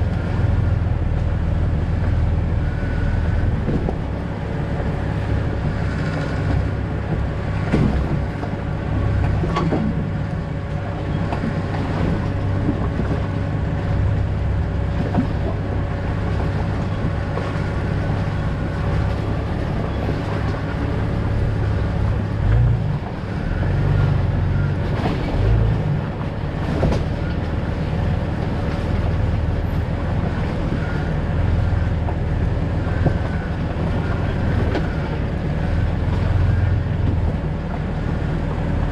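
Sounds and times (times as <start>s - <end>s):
engine and road rumble: 0.0s - 38.9s
knocks and rattles from bumps: 5.8s - 10.1s.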